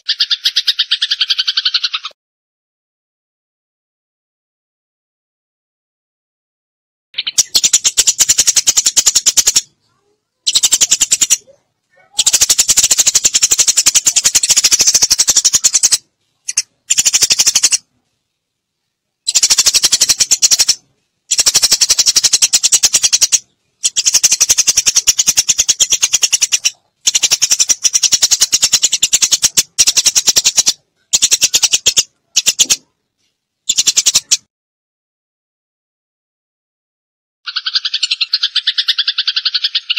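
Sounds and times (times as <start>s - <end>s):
sparrows chattering: 0.0s - 2.1s, 7.2s - 17.9s, 19.2s - 32.9s, 33.7s - 34.4s, 37.5s - 39.9s.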